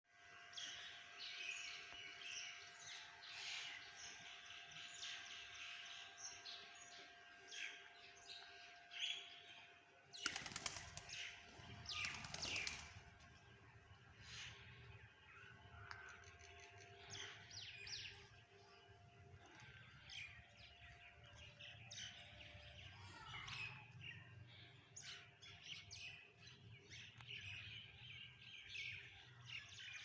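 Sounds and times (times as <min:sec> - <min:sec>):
small birds chirping: 0:10.1 - 0:30.0
bird wings flapping: 0:10.2 - 0:13.3.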